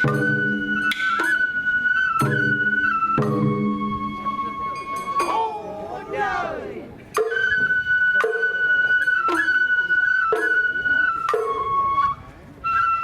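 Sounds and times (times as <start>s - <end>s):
bamboo flute long high notes: 0.0s - 13.0s
sharp percussion strike: 0.8s - 1.8s.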